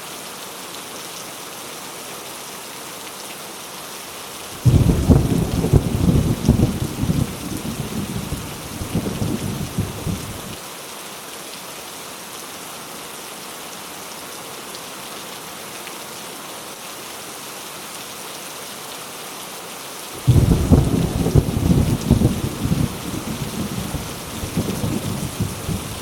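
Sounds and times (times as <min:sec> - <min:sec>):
heavy rain: 0:00.0 - 0:26.0
rolling thunder: 0:04.6 - 0:10.5, 0:20.2 - 0:26.0.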